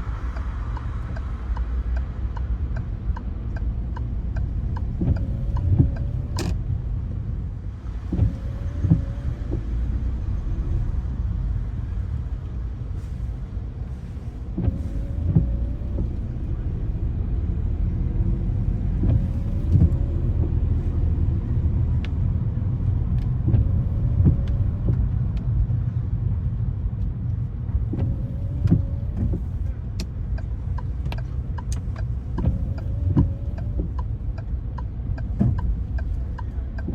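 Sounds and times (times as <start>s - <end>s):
engine and road rumble: 0.0s - 36.9s
tyres hissing on wet road: 11.6s - 16.8s.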